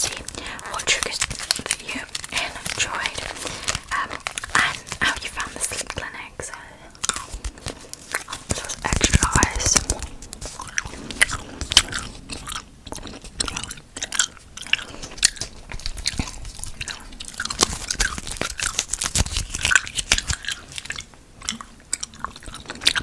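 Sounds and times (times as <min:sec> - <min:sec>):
wet mouth chewing: 0:00.0 - 0:23.0
tongue and lip clicks: 0:07.0 - 0:23.0.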